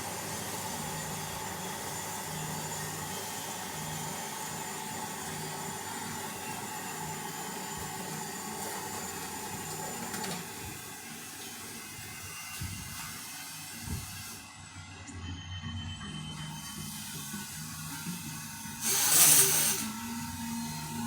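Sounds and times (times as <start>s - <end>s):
lathe running: 0.0s - 13.6s, 16.3s - 21.0s.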